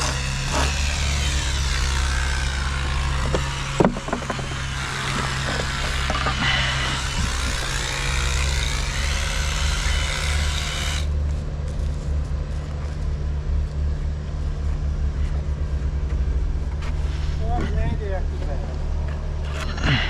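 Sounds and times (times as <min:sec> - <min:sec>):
low vehicle rumble: 0:11.0 - 0:20.0.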